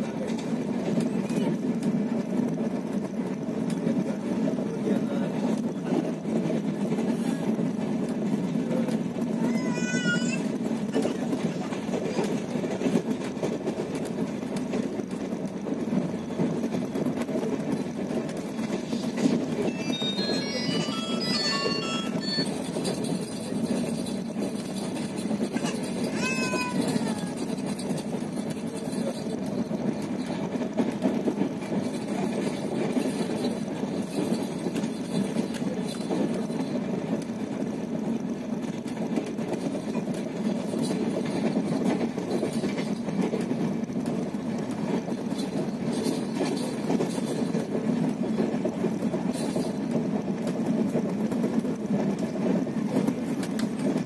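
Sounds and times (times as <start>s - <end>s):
train wheels rumbling on rails: 0.0s - 54.0s
baby whining: 9.4s - 10.6s, 25.6s - 27.4s.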